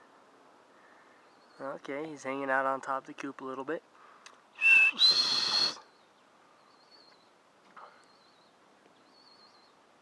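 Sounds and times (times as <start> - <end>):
shrill two-part bird call: 4.6 - 6.0
faint high bird calls: 4.6 - 9.9.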